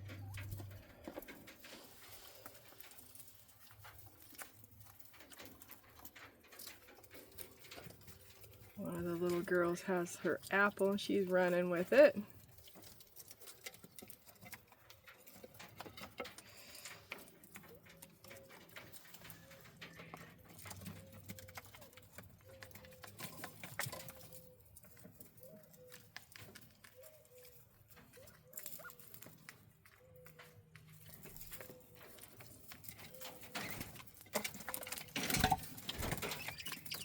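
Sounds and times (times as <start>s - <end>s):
quail pecking and scratching: 0.0s - 37.0s
soft short peeps: 36.2s - 37.0s.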